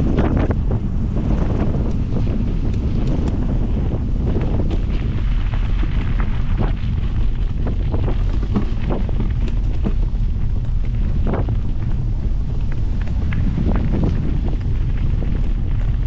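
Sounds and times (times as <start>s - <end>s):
wind buffeting microphone: 0.0s - 16.0s
knocks and rattles: 7.6s - 11.4s.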